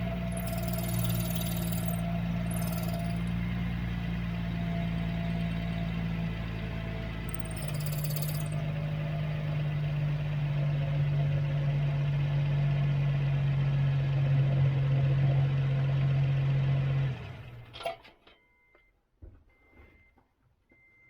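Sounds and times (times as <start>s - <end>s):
engine running: 0.0s - 13.7s
clutch bearing noise: 0.2s - 3.4s, 6.6s - 8.6s
clack: 0.3s - 3.4s, 7.3s - 8.6s.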